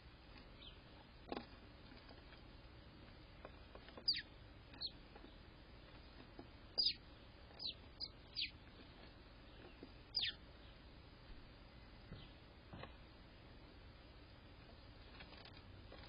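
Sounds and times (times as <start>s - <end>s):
small bird chirping: 0.5s - 0.9s, 3.8s - 10.9s.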